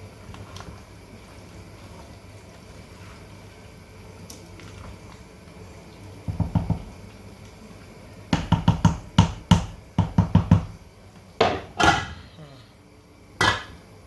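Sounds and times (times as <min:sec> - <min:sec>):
spoon knocking on pot: 0:06.3 - 0:06.9, 0:08.3 - 0:10.8, 0:11.4 - 0:12.2.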